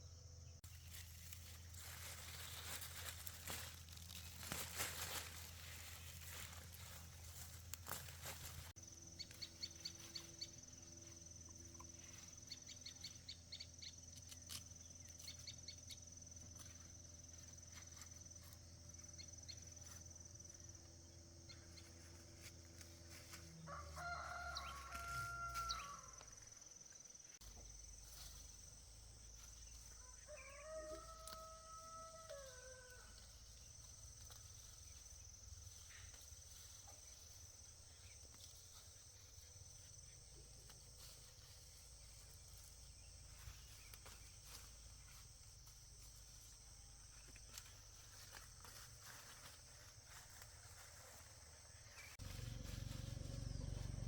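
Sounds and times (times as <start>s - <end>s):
rooster crowing: 23.5s - 26.4s, 30.0s - 33.3s
low hum: 52.2s - 54.0s.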